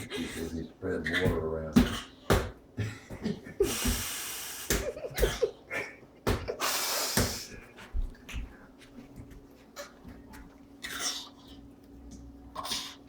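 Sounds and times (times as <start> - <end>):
baby grunting: 0.0 - 2.2.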